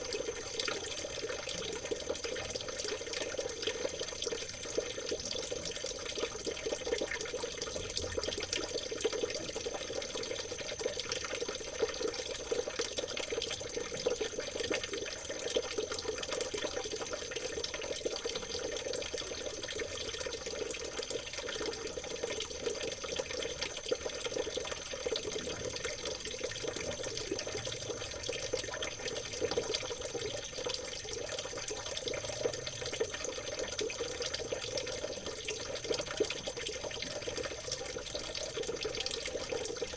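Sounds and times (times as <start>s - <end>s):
river water trickling: 0.0s - 39.9s.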